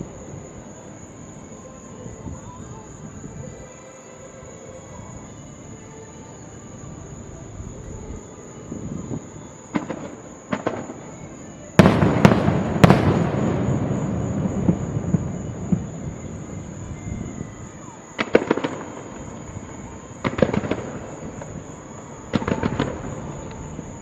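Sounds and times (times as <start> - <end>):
fireworks pops: 9.7 - 16.0, 18.2 - 19.6, 20.2 - 24.0
volley of firework bangs: 9.7 - 16.8, 18.2 - 24.0.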